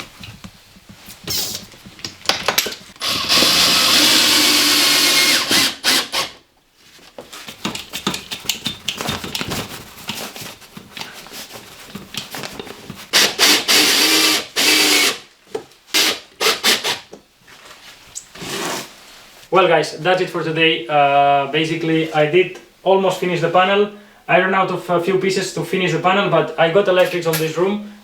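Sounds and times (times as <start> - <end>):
handling knocks and clicks: 0.0 - 3.0, 7.0 - 13.1
electric power tool running: 3.0 - 6.4, 13.2 - 15.2.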